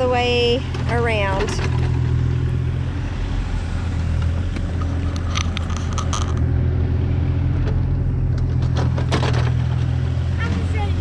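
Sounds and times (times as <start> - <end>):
earth-moving machine engine drone: 0.0 - 11.0.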